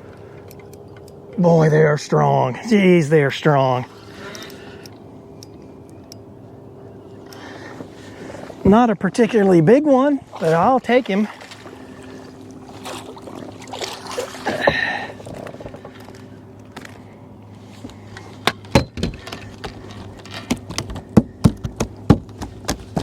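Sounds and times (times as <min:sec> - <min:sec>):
steady low hum: 0:00.0 - 0:23.0
fish flopping in boat: 0:10.2 - 0:17.1.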